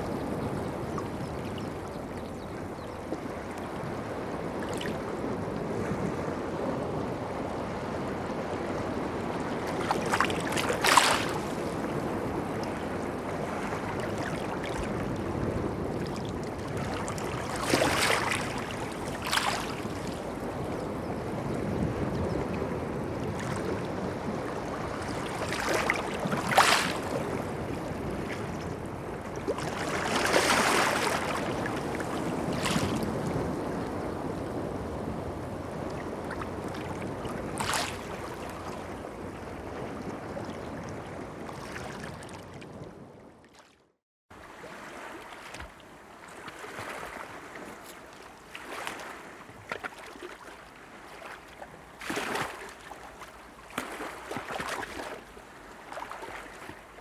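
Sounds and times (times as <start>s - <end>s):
sea water lapping: 9.0s - 20.8s, 23.2s - 57.0s.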